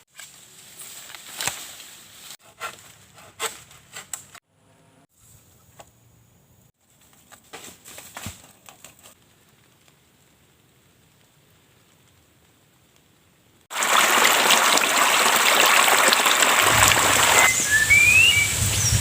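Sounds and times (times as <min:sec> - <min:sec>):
rustling and crackling: 0:06.8 - 0:13.2.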